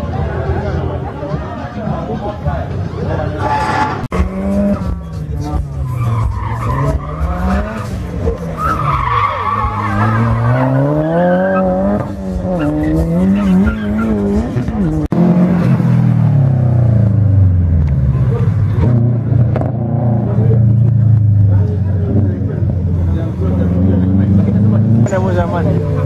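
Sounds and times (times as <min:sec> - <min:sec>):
race car engine revving: 0:02.9 - 0:26.0
car engine under steady throttle: 0:04.1 - 0:26.0
tyres squealing: 0:05.7 - 0:11.8.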